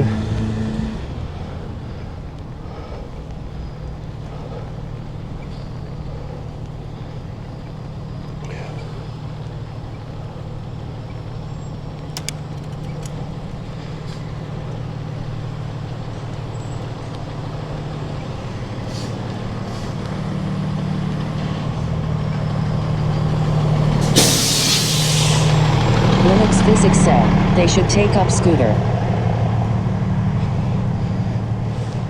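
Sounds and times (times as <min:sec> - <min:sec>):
large vehicle engine humming: 0:00.0 - 0:32.0
loud air hiss: 0:24.0 - 0:26.0.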